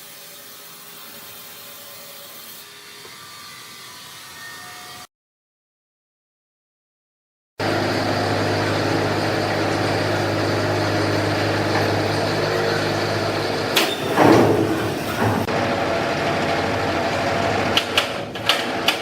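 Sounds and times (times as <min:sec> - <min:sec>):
factory machinery humming: 0:07.6 - 0:19.0.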